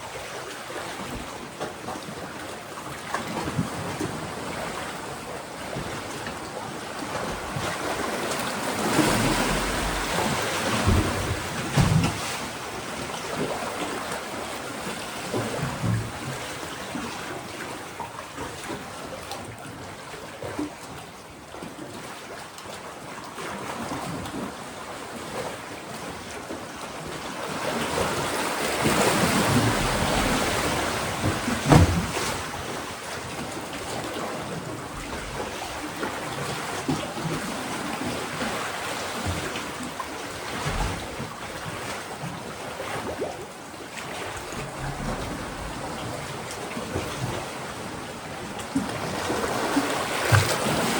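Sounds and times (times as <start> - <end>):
waves washing on rocky shore: 7.1 - 14.8, 27.5 - 42.4
wave thump: 9.0 - 12.6, 29.4 - 32.8, 40.5 - 41.4.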